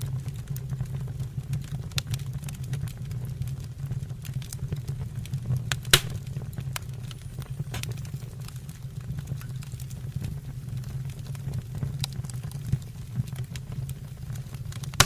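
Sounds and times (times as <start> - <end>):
fire crackling: 0.0 - 15.0
wood fire rumbling: 0.0 - 15.0
loud wood pop: 5.9 - 6.5.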